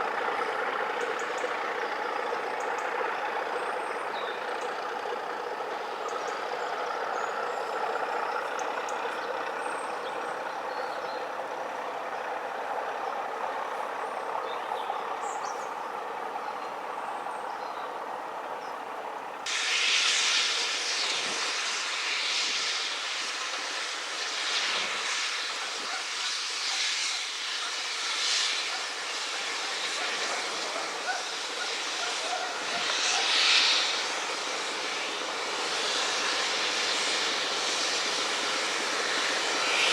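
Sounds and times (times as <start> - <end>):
locomotive running: 0.0 - 39.9
hissing with uneven beats: 19.5 - 39.9.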